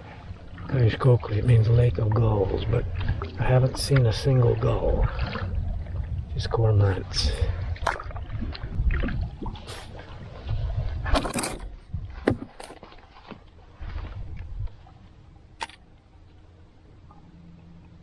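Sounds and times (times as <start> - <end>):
paddle splashing in water: 0.0 - 6.2, 7.6 - 15.0
low rumble: 0.0 - 12.5.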